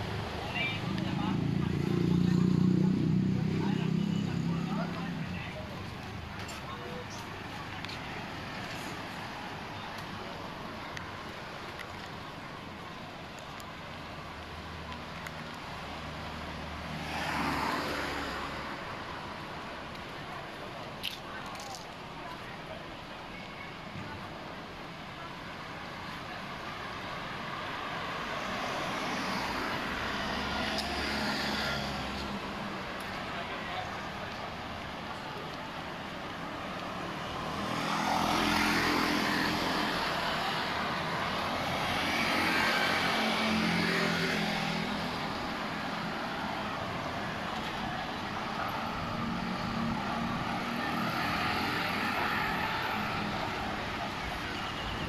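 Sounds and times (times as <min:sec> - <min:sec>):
vehicle passing by: 0:00.0 - 0:05.7
wind: 0:00.0 - 0:55.0.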